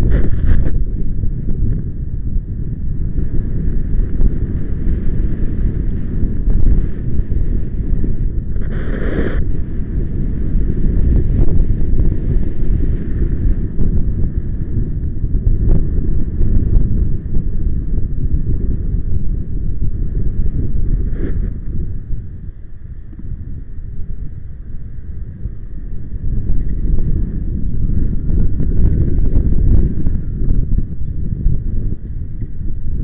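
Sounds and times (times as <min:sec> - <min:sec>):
wind buffeting microphone: 0:00.0 - 0:33.0
hissing rush: 0:04.5 - 0:13.7.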